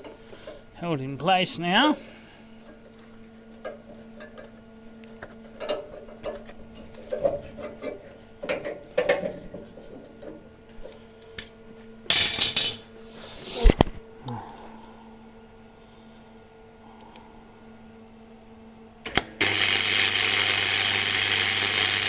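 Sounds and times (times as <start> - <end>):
metal tools clinking: 12.1 - 12.8
crackling welding burst: 19.4 - 22.0.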